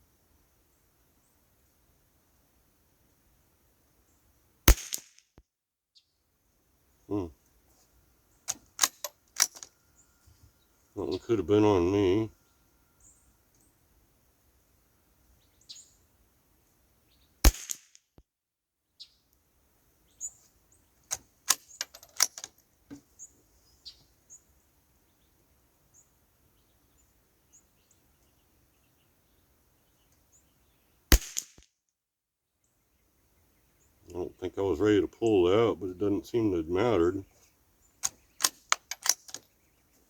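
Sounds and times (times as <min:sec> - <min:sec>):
faint birdsong: 0:00.0 - 0:04.6, 0:05.9 - 0:17.5, 0:18.9 - 0:31.2, 0:32.4 - 0:40.0
rifle shots: 0:04.7 - 0:05.1, 0:08.5 - 0:09.7, 0:17.5 - 0:17.9, 0:31.1 - 0:31.6, 0:38.0 - 0:39.4
sharp clicks and clacks: 0:08.5 - 0:09.7, 0:21.1 - 0:22.5, 0:38.0 - 0:39.4.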